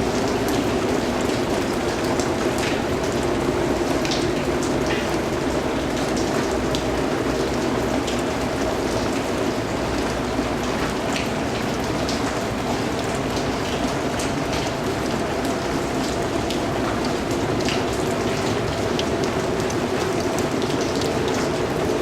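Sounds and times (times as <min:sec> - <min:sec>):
steady rain pattering: 0:00.0 - 0:22.0.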